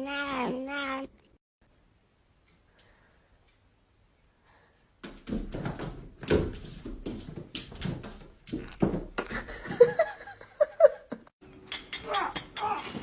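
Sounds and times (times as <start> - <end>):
knocks bumps and scuffing: 5.0 - 9.6.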